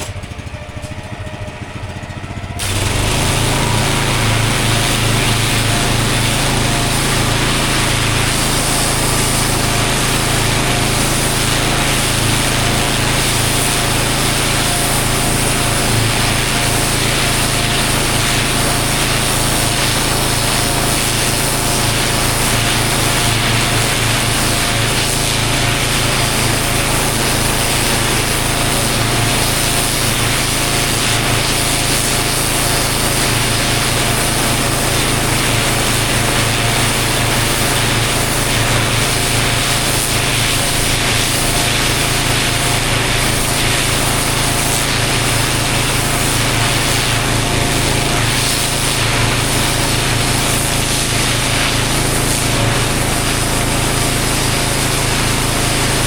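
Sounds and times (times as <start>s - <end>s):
pressure washer engine running: 0.0s - 56.0s
water jet hissing on paving: 2.6s - 56.0s.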